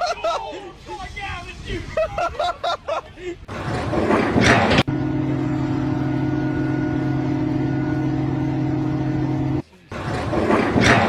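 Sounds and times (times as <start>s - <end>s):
machine engine running: 3.5s - 11.0s.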